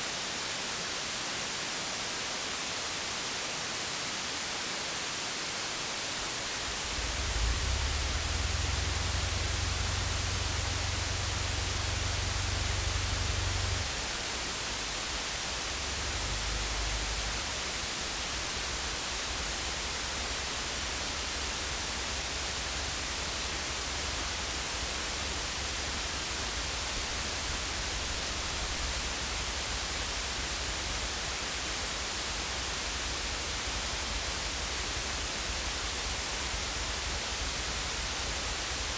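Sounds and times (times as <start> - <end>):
steady static hiss: 0.0 - 38.9
low rumble: 6.6 - 15.1.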